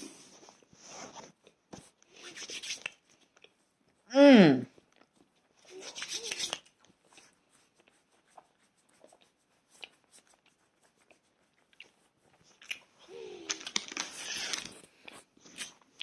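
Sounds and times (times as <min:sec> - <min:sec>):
chewing and crunching snack: 0:02.8 - 0:04.0, 0:04.7 - 0:16.0.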